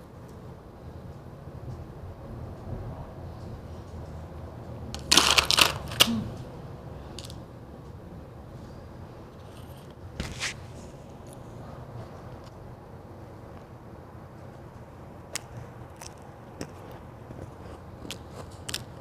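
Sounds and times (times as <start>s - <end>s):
ice being bitten and chewed: 5.0s - 6.1s, 15.4s - 19.0s.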